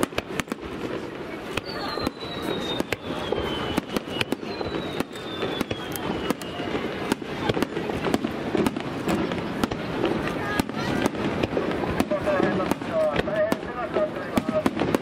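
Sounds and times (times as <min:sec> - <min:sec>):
descending firework whistle: 0:00.0 - 0:07.8.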